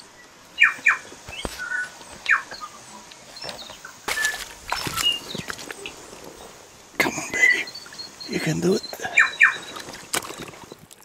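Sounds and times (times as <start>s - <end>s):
falling bird chirps: 0.6s - 6.5s
fish splashing into water: 4.1s - 5.8s, 9.7s - 11.0s.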